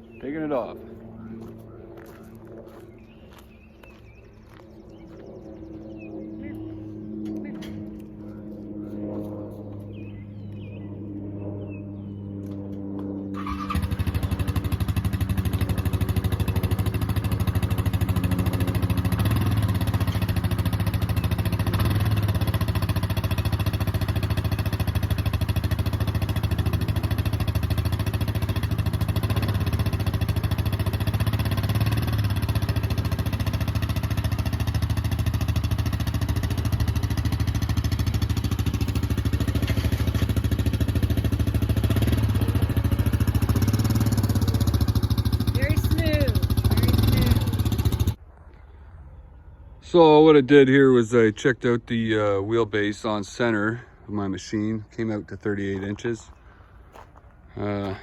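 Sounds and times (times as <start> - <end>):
quad bike engine running: 13.3 - 48.2.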